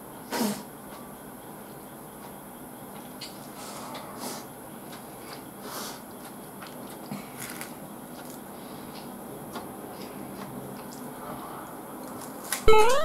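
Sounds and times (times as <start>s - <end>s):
chewing food: 4.8s - 12.6s.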